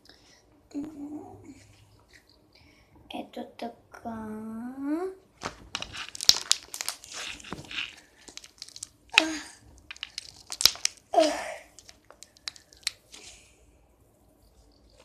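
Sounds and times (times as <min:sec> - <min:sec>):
slime squeezed by hand: 0:05.4 - 0:13.1.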